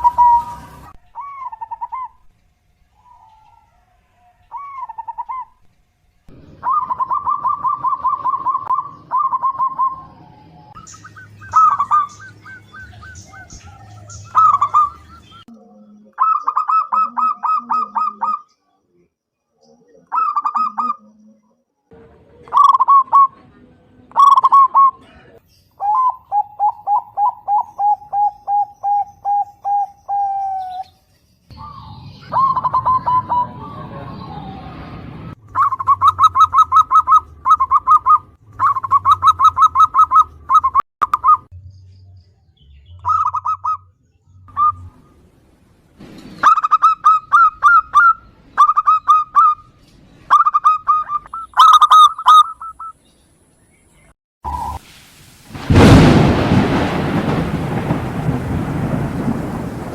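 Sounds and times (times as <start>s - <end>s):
dove cooing: 0.0s - 2.3s, 6.4s - 10.6s, 11.2s - 18.5s, 19.9s - 21.2s, 22.4s - 23.4s, 24.1s - 30.8s, 31.6s - 34.5s.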